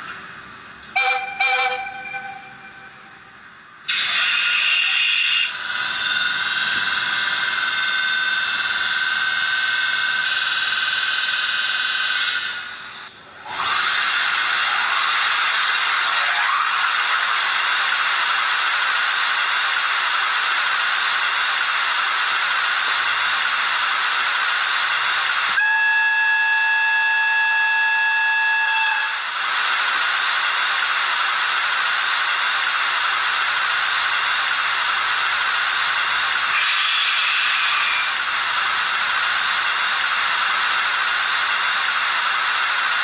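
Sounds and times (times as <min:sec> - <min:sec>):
locomotive whistle: 0:00.9 - 0:03.1, 0:25.6 - 0:29.3
model locomotive hissing running sound: 0:02.5 - 0:43.0.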